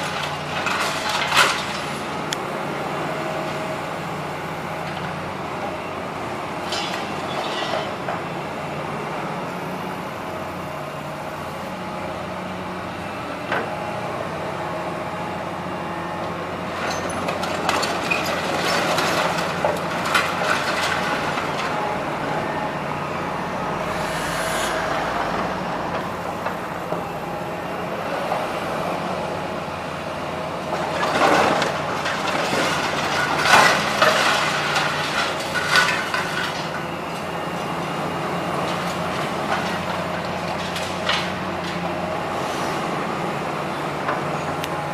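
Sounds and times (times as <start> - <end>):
debris clattering and crashing: 0.0 - 2.0, 16.8 - 22.0, 30.6 - 36.9, 38.6 - 41.9
diesel demolition machinery running: 0.0 - 44.9.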